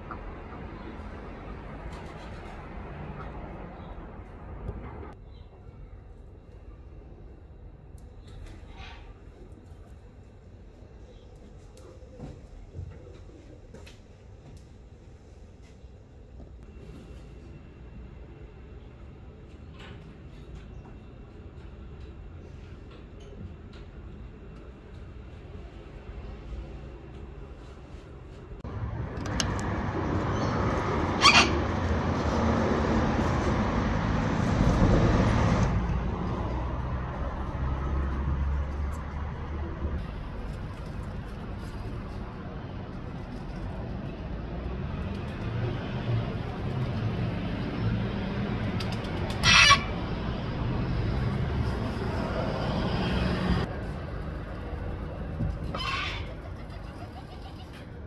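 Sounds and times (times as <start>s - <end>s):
loud bird calls: 30.3s - 31.7s.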